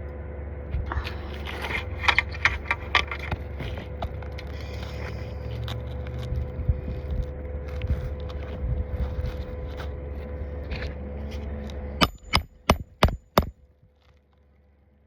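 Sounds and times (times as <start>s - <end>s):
small scrapes and clicks: 0.8s - 12.4s
hammer nailing shingle: 12.0s - 13.5s.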